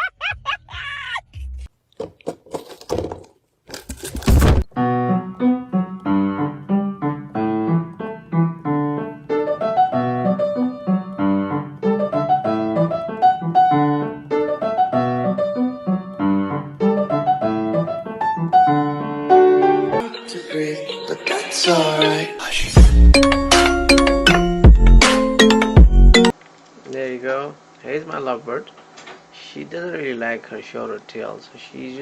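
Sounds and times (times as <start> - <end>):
piano music: 4.7 - 26.4.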